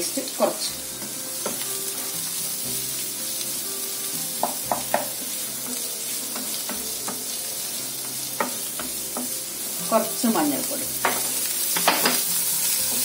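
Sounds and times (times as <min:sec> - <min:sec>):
food sizzling in oil: 0:00.0 - 0:13.0
spatula knocking against pan: 0:04.4 - 0:05.2, 0:08.2 - 0:09.4.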